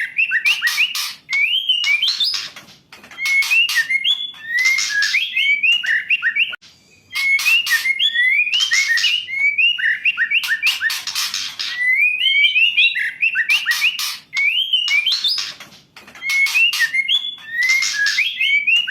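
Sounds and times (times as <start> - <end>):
bird rasping chatter: 0.7 - 5.3, 10.5 - 11.9, 13.6 - 18.9
bird whistled notes: 3.2 - 15.5, 16.2 - 18.9.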